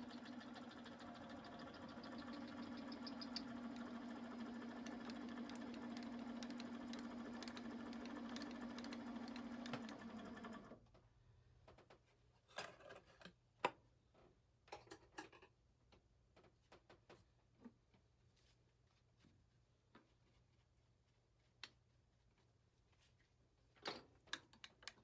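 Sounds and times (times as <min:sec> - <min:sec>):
machine tool humming with fine ticking: 0:00.0 - 0:10.7.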